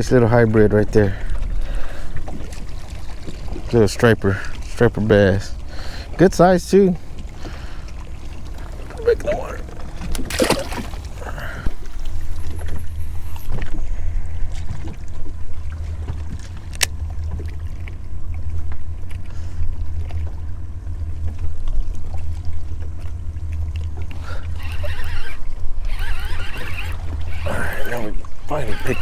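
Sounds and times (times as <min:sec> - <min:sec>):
water and gear noises: 0:00.0 - 0:29.0.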